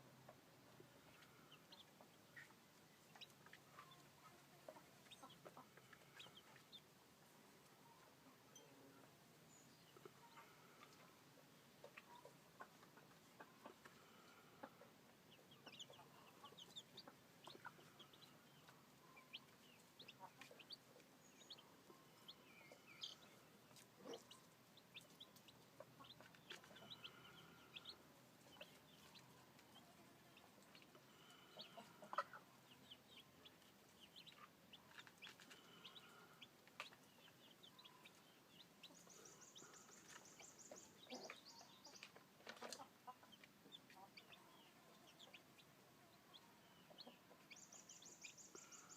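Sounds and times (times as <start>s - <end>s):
chicks peeping: 0.0s - 48.9s
soft clucking: 0.2s - 6.8s, 11.8s - 38.1s, 38.8s - 45.4s.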